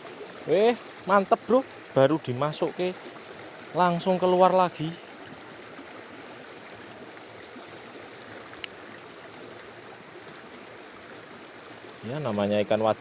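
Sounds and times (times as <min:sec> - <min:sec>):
stream water over rocks: 0:00.0 - 0:13.0
small click: 0:08.6 - 0:08.8.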